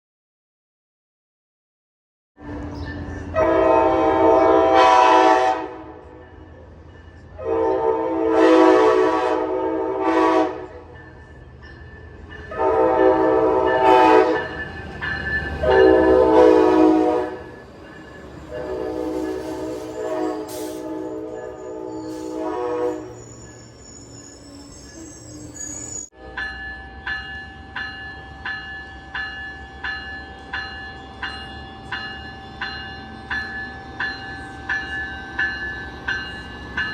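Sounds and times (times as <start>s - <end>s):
train rumbling past: 2.4s - 36.9s
train air horn blasts: 3.4s - 6.2s, 7.4s - 10.9s, 12.5s - 14.5s, 15.6s - 17.6s, 18.5s - 23.4s.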